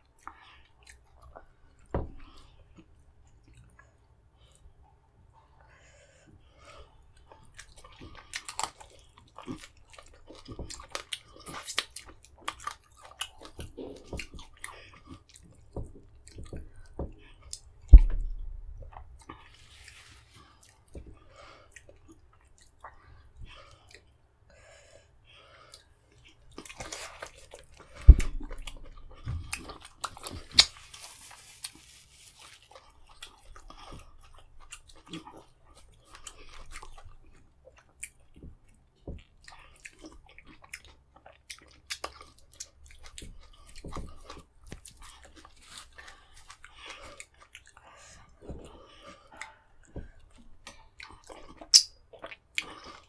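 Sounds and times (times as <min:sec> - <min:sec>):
man chewing and eating: 0:00.0 - 0:53.0.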